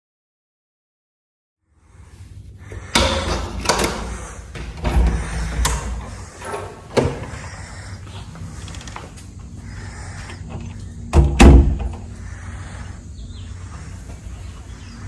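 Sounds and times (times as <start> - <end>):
door knocks and clicks: 2.7 - 9.1, 9.9 - 12.1.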